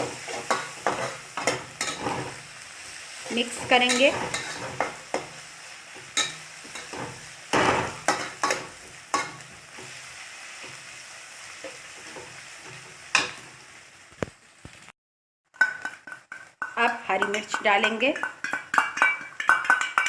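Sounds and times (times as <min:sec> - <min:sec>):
spoon scraping and knocking pan: 0:00.0 - 0:02.5, 0:03.2 - 0:10.0, 0:15.5 - 0:20.0
onions sizzling in oil: 0:00.0 - 0:14.9, 0:15.5 - 0:20.0.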